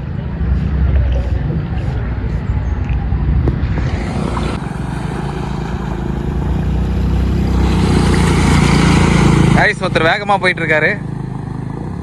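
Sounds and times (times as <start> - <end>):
motorbike engine running: 4.6 - 12.0.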